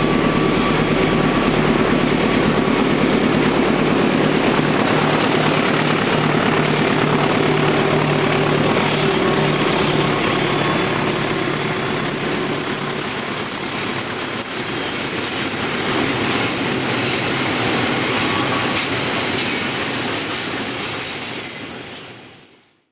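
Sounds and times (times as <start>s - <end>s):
train wheels clattering on rails: 0.0s - 22.6s
wheel squeal: 7.3s - 22.0s.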